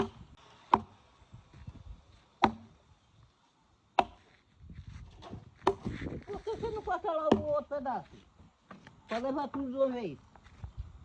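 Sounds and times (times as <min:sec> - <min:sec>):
blade chopping wood: 0:00.0 - 0:01.0, 0:02.4 - 0:02.7, 0:04.0 - 0:04.3, 0:05.2 - 0:05.9.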